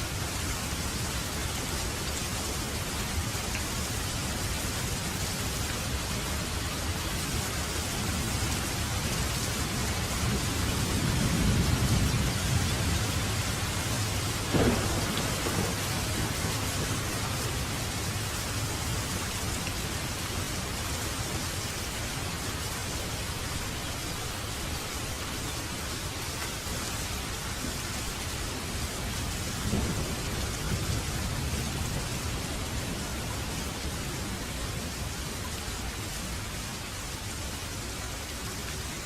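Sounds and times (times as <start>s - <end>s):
steady rain: 0.0s - 39.0s
low rumble of thunder: 8.0s - 19.6s, 28.6s - 35.0s.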